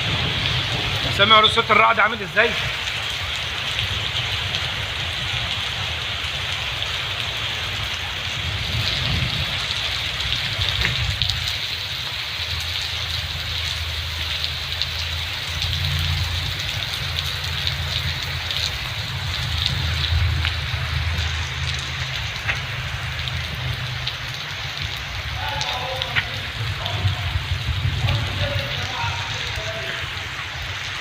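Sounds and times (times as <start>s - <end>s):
heavy rain pouring: 0.0s - 31.0s
low rumble: 13.8s - 31.0s.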